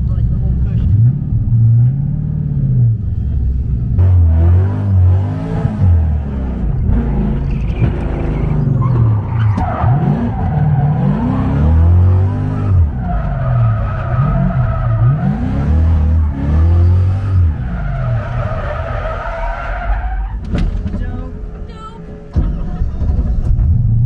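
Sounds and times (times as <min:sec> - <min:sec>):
car engine revving: 0:00.0 - 0:24.0
tyres squealing: 0:06.9 - 0:23.2.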